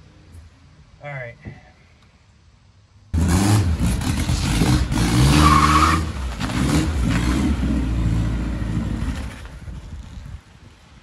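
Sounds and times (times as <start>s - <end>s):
car engine revving: 3.2s - 9.4s.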